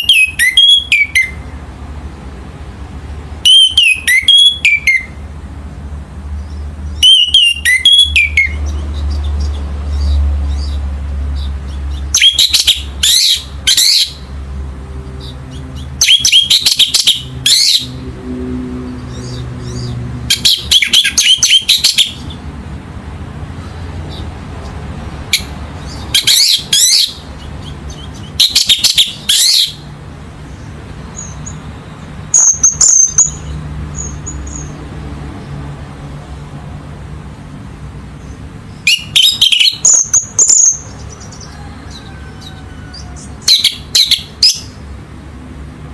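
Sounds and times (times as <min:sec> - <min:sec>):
bird singing whistled phrases: 0:00.0 - 0:01.4, 0:03.4 - 0:05.2, 0:07.0 - 0:08.6, 0:16.0 - 0:17.8.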